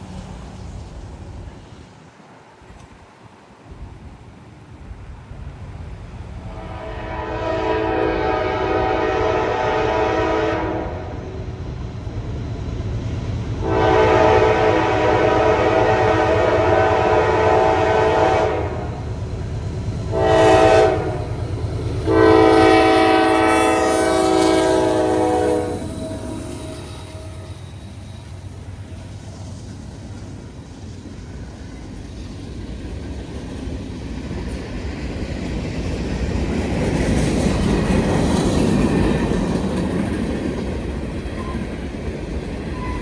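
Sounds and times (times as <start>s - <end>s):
train rumbling: 0.0s - 43.0s
locomotive air horn blasts: 6.5s - 11.3s, 13.6s - 19.0s, 20.1s - 21.3s, 22.0s - 27.7s.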